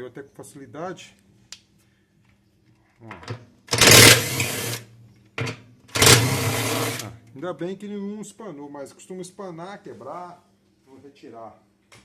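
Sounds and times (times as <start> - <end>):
cordless screwdriver whirring: 3.8 - 4.8, 6.0 - 7.1.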